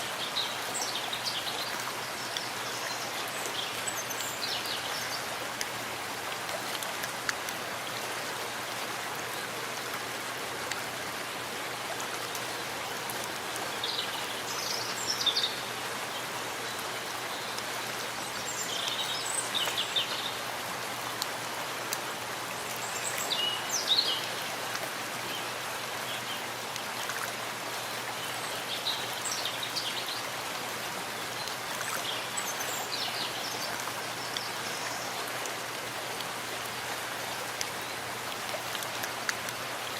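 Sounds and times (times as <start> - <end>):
rain pattering: 0.1 - 15.1, 20.5 - 25.3.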